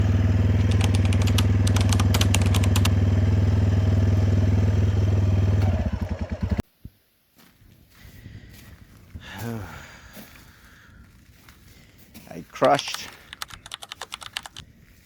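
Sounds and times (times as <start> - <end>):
motorcycle engine idling: 0.0 - 6.6
sharp clicks: 0.5 - 3.0, 12.6 - 14.6.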